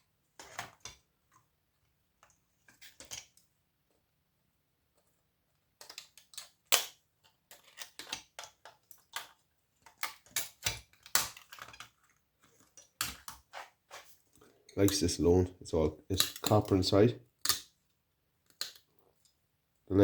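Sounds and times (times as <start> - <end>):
components snapping off circuit board: 16.1 - 16.7.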